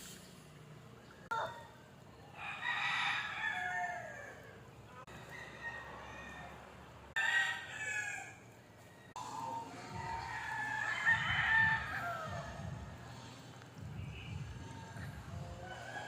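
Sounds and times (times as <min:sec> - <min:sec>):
rooster crowing: 0:02.3 - 0:12.8, 0:15.6 - 0:16.0.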